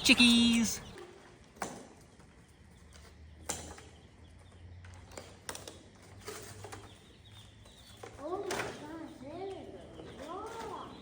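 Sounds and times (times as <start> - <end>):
baby chicks peeping: 0.0 - 1.0, 2.3 - 5.4, 6.7 - 11.0.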